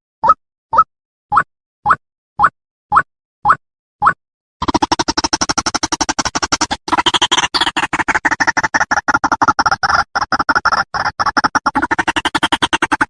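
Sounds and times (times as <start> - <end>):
bird rapid harsh chattering call: 4.6 - 13.0.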